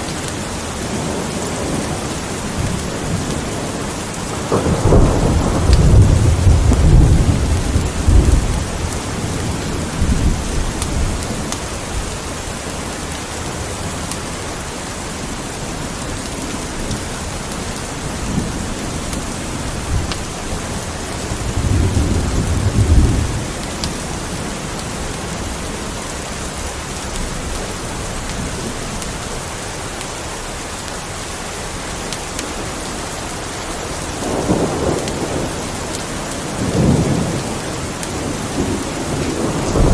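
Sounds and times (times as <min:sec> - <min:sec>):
steady rain falling: 0:00.0 - 0:39.9
low rolling thunder: 0:00.9 - 0:12.2, 0:17.7 - 0:26.0, 0:34.2 - 0:39.9.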